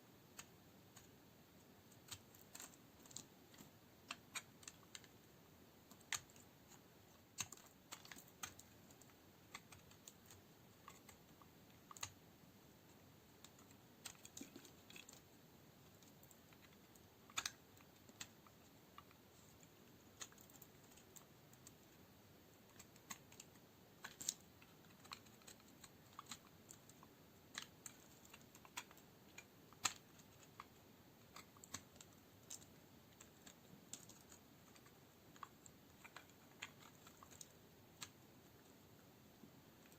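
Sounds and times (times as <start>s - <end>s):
blade cracking dry soap: 5.9s - 12.2s, 22.6s - 38.2s.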